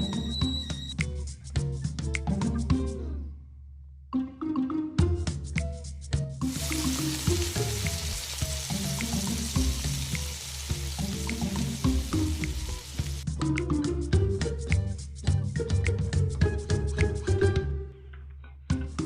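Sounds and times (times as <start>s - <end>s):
food sizzling in a frying pan: 6.5s - 13.2s.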